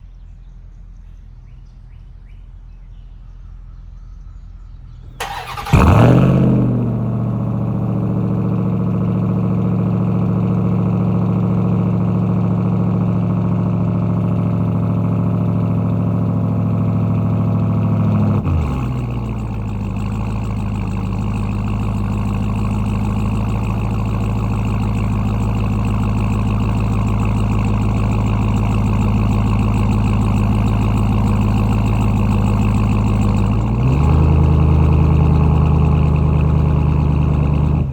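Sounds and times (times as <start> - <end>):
engine idling: 5.1 - 37.9
engine cranking and starting: 5.2 - 7.6.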